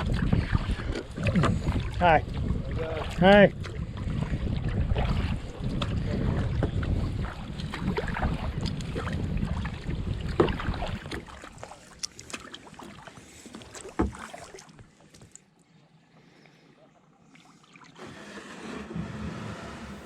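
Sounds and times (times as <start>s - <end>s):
wind rumbling on microphone: 0.0s - 11.7s
water splashing: 0.0s - 15.5s.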